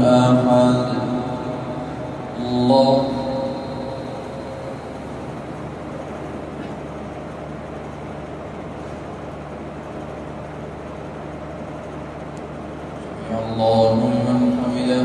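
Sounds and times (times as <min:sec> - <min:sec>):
sound system hum and hiss: 0:00.0 - 0:15.0.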